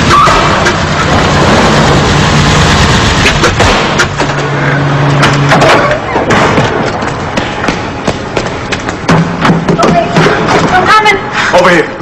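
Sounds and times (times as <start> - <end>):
dense rush of noise: 0.0 - 5.4
car engine humming: 0.0 - 11.3
sharp knocks: 5.2 - 10.8.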